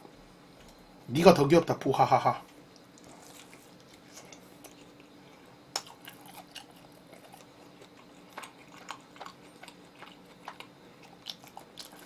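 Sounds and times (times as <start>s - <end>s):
person chewing: 2.7s - 12.0s.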